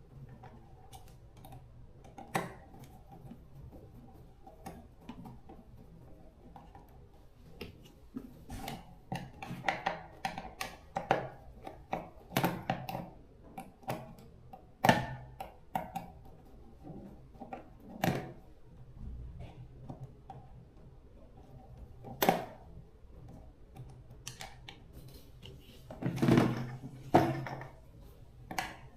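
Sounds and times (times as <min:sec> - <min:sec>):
hand tools and metal parts clattering: 0:25.2 - 0:27.9.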